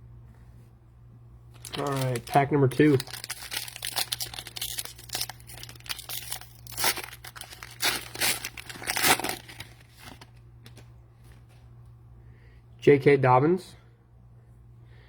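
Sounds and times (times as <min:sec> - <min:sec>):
cellophane wrapper tearing and crinkling: 0:01.5 - 0:10.9.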